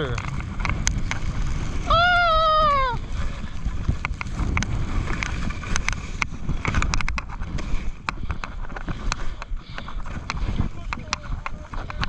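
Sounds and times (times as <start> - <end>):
sharp clicks and ticks: 0.0 - 1.2, 3.9 - 12.0
wind rumbling on microphone: 0.0 - 12.0.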